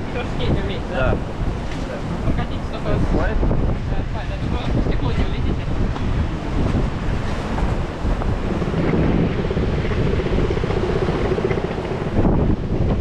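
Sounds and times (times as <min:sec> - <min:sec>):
sea surf: 0:00.0 - 0:13.0
wind buffeting microphone: 0:00.0 - 0:13.0
steady low hum: 0:05.7 - 0:13.0.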